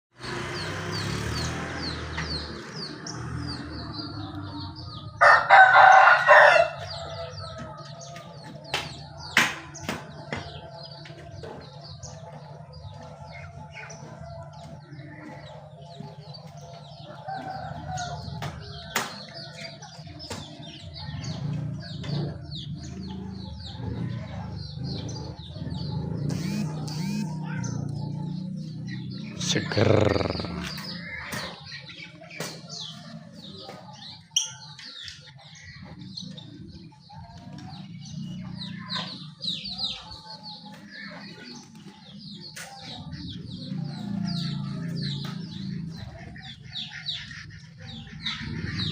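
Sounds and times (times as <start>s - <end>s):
songbird chirping: 0.2s - 48.9s
rooster crowing: 5.2s - 7.8s, 17.2s - 18.4s.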